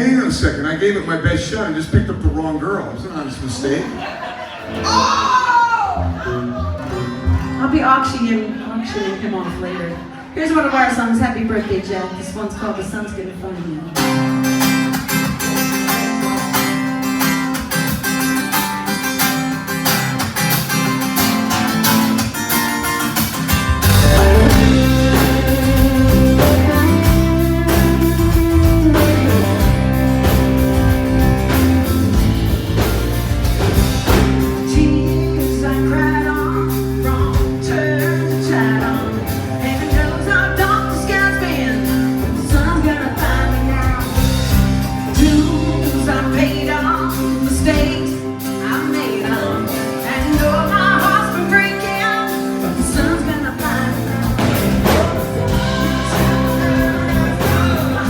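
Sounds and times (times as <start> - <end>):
guitar: 0.0 - 58.0
bass guitar: 4.7 - 8.0, 14.0 - 58.0
drums: 13.6 - 58.0
person singing: 23.8 - 31.6, 34.1 - 58.0.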